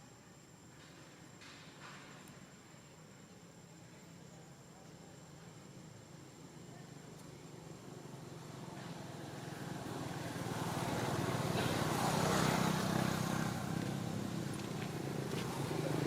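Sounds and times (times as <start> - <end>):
vehicle engine humming: 7.8 - 16.0.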